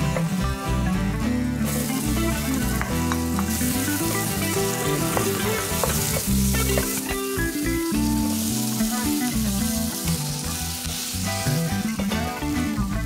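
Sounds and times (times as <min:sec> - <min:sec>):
background music: 0:00.0 - 0:13.0
onion sizzling in hot oil: 0:00.0 - 0:13.0.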